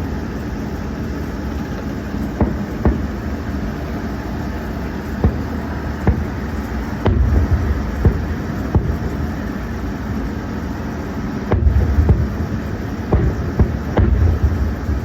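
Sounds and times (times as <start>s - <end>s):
distant fireworks thumps: 1.6s - 10.6s, 11.2s - 15.0s
low rumble: 2.4s - 9.4s, 11.5s - 15.0s.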